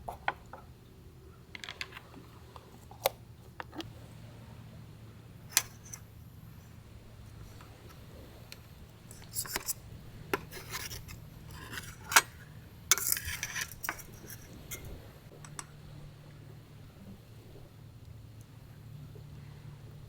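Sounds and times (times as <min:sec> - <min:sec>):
cookware scraping and clicking: 0:05.5 - 0:06.1, 0:09.1 - 0:15.7.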